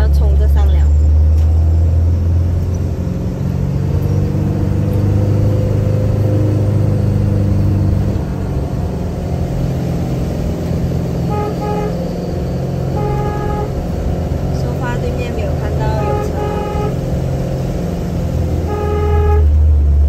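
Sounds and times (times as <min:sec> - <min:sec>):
car engine pulling under load: 0:00.0 - 0:20.0
car horn toots: 0:11.2 - 0:13.9, 0:14.9 - 0:17.2, 0:18.5 - 0:19.6.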